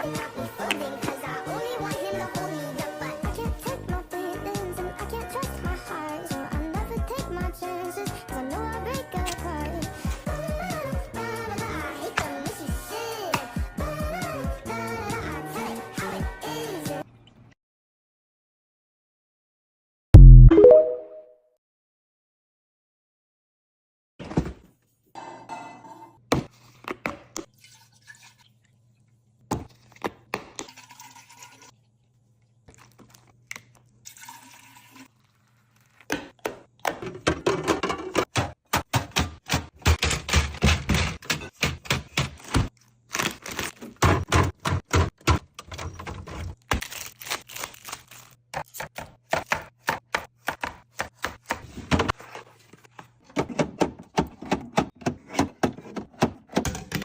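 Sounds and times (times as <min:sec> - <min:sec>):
liquid pouring: 0:27.5 - 0:28.8, 0:30.6 - 0:31.9, 0:32.7 - 0:36.0
containers clicking and thudding: 0:36.0 - 0:46.6, 0:52.9 - 0:57.0.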